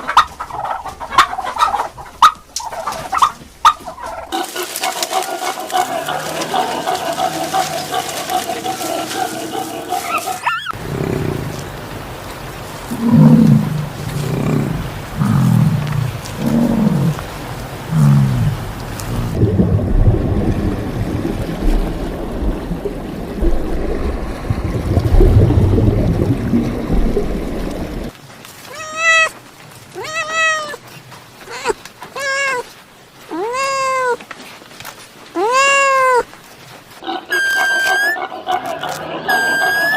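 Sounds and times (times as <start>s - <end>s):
low deep animal calls: 2.6s - 12.2s, 12.8s - 20.2s, 31.4s - 32.7s, 37.0s - 39.9s
cat meowing: 28.7s - 29.4s, 30.0s - 30.8s, 31.4s - 32.7s, 33.3s - 34.2s, 35.4s - 36.3s
pitched animal call with rising glide: 37.2s - 39.9s.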